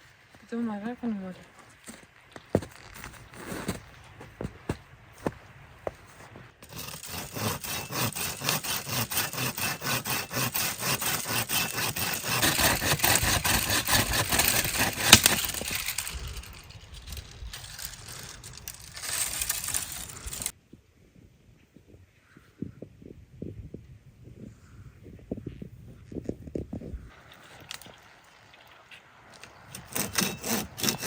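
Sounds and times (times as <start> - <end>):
back-and-forth scraping strokes: 5.8 - 20.5, 28.8 - 31.0.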